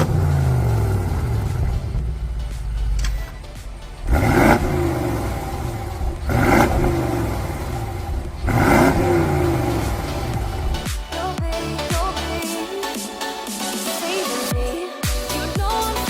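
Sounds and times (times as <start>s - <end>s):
car engine revving from idle: 0.0s - 2.3s, 4.0s - 10.7s.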